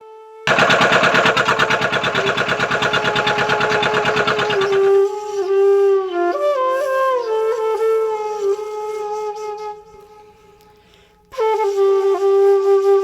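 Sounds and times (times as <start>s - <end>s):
diesel engine chugging: 0.5s - 5.0s
flute melody: 5.7s - 10.3s, 11.4s - 13.0s.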